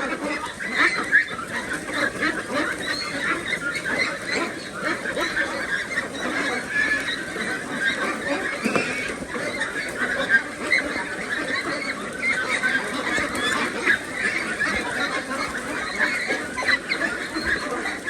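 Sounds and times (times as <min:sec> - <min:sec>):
flock of ducks calling: 0:00.0 - 0:18.0.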